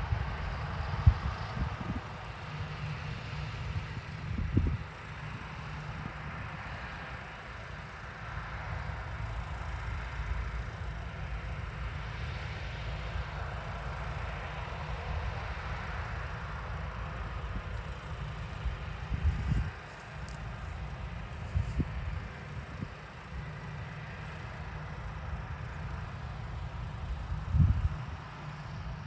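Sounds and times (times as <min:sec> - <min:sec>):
wind buffeting microphone: 0:00.0 - 0:02.2, 0:03.7 - 0:04.9, 0:18.9 - 0:19.9, 0:20.5 - 0:22.9, 0:27.3 - 0:28.2
farm machinery running: 0:00.0 - 0:29.0.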